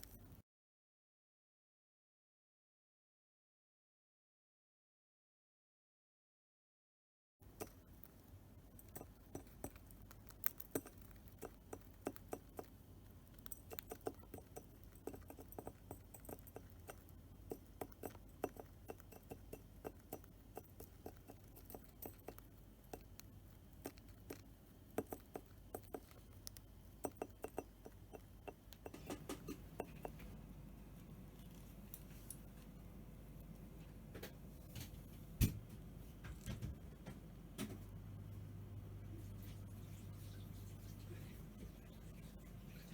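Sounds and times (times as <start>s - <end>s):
bird beak clicking and tapping: 7.5s - 30.4s.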